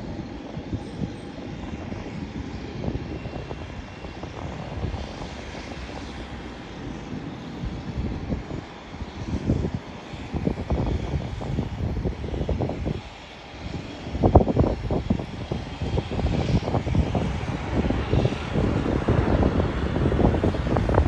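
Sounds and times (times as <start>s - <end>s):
airliner engines rumbling: 0.0s - 21.0s
wind buffeting microphone: 0.0s - 21.0s.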